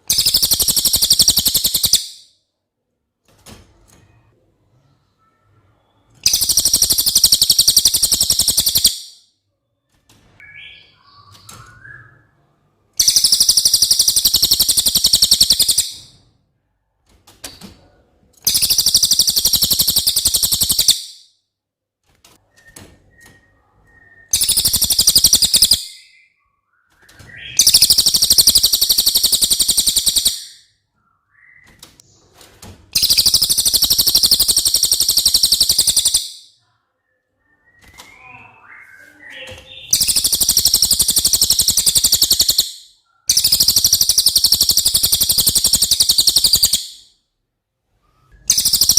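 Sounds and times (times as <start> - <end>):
bird high fast trills: 0.0 - 2.1, 6.2 - 9.1, 13.0 - 16.1, 18.5 - 21.2, 24.2 - 26.0, 27.5 - 30.6, 33.0 - 36.5, 39.4 - 47.0, 48.5 - 48.9
faint bird chirps: 0.0 - 2.5, 3.8 - 16.4, 17.4 - 21.4, 22.4 - 48.9.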